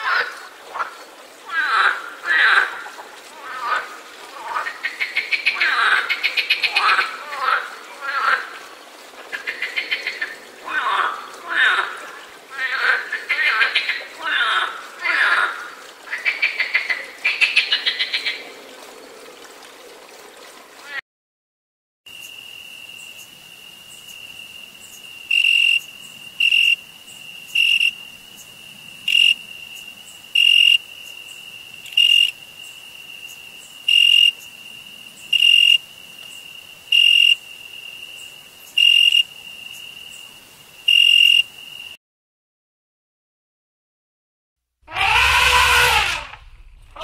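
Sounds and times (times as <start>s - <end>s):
cricket trilling: 22.1s - 42.0s.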